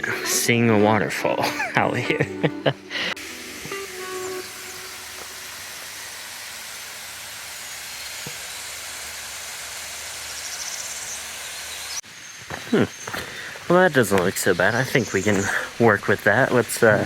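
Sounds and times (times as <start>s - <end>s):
waterfall rushing: 2.8s - 12.0s, 13.2s - 17.0s.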